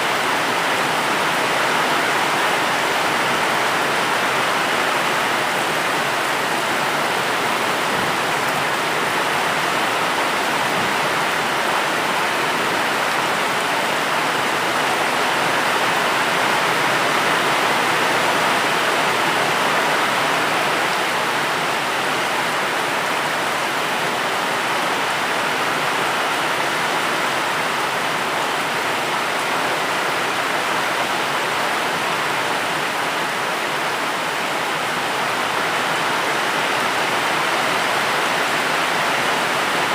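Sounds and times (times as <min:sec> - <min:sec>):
steady heavy rain: 0:00.0 - 0:39.9.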